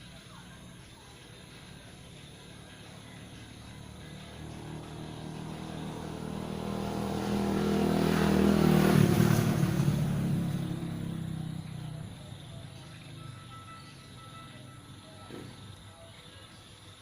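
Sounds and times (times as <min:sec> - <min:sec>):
motor vehicle driving past: 0:01.7 - 0:16.0.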